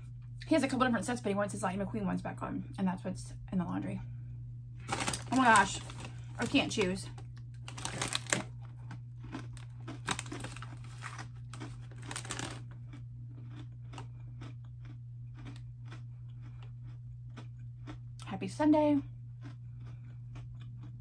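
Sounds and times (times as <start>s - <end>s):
crisp snack crunching: 4.8s - 18.3s, 19.4s - 21.0s.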